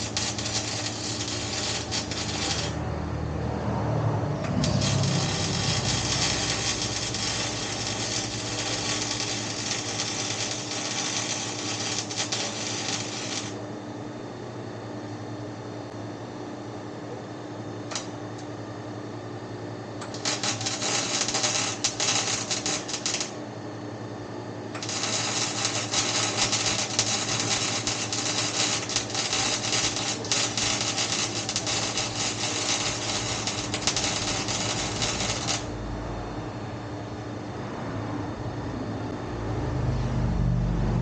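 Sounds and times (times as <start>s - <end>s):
welder crackling: 0.0s - 2.9s, 4.4s - 13.6s, 17.9s - 18.2s, 20.0s - 23.4s, 24.8s - 35.8s
steady low hum: 0.0s - 41.0s.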